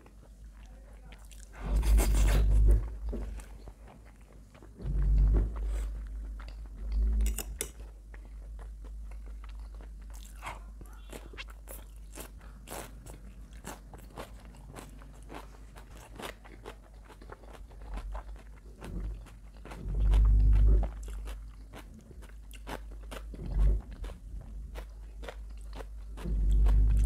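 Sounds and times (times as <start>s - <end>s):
crunching raw vegetables: 8.0s - 27.0s.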